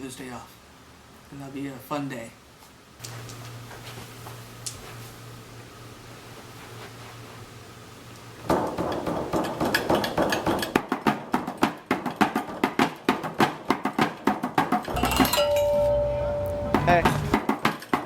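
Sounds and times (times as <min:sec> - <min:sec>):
drum kit played fast: 0:10.8 - 0:17.6.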